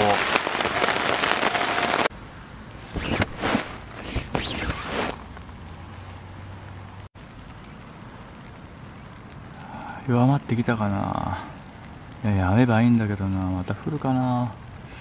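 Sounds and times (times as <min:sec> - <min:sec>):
rain pattering on a tarp: 0:00.0 - 0:15.0
wet tarp rustling and splashing: 0:02.8 - 0:05.4.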